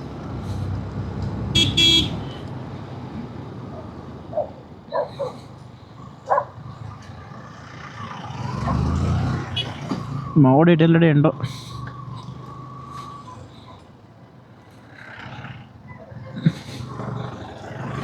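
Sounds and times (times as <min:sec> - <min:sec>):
road traffic rumble: 0:00.0 - 0:18.0
vehicle horn honks: 0:01.5 - 0:02.5, 0:09.5 - 0:09.8.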